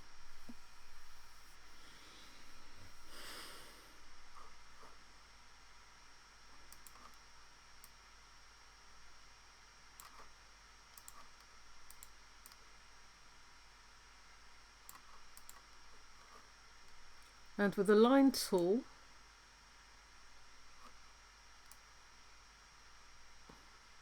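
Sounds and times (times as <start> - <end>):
low hiss and hum: 0.0 - 24.0
computer mouse clicks: 6.5 - 8.0, 10.0 - 12.7, 14.8 - 17.4, 21.6 - 21.9.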